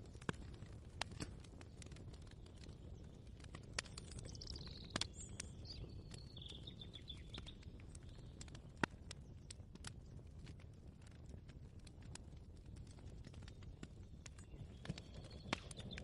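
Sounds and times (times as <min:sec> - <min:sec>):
bird chirping song: 0:03.8 - 0:08.4, 0:13.5 - 0:16.0.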